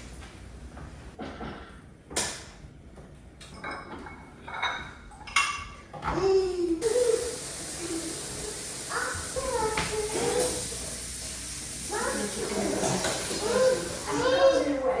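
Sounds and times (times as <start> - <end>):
dishes and cutlery clinking: 3.4 - 6.3, 12.4 - 14.6.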